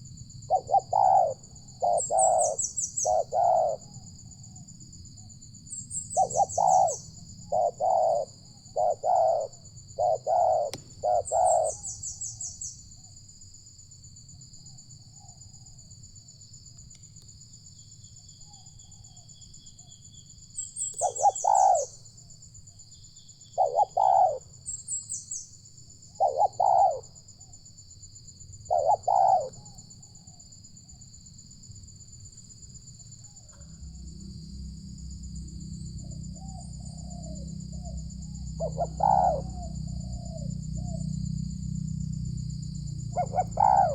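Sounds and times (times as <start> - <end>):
doves cooing: 0.0 - 4.1, 6.0 - 12.1, 20.9 - 22.0, 23.6 - 24.5, 26.2 - 27.2, 28.6 - 30.0, 35.9 - 41.2, 43.0 - 43.9
high-pitched whine: 33.3 - 43.9.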